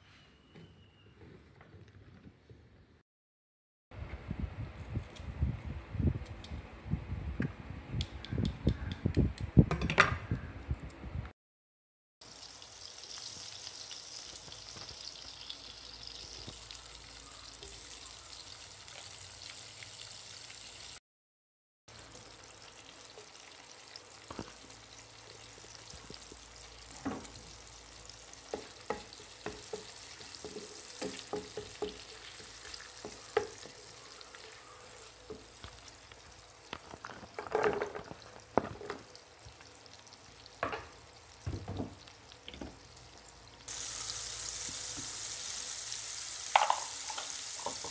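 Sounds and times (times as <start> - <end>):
fat sizzling in a pan: 12.2 - 21.0, 21.9 - 47.9
frying pops and crackles: 12.2 - 21.0, 21.9 - 47.9
wooden spatula tapping pan: 28.5 - 33.8.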